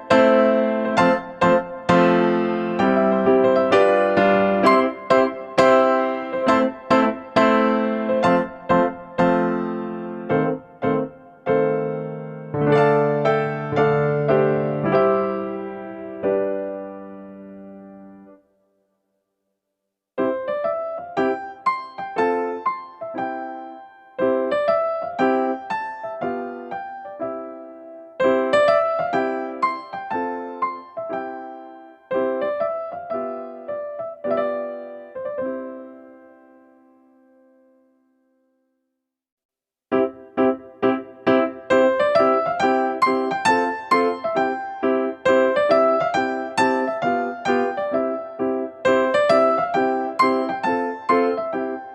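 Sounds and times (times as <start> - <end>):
slow piano melody: 0.0 - 18.7, 20.2 - 38.6, 39.9 - 51.9.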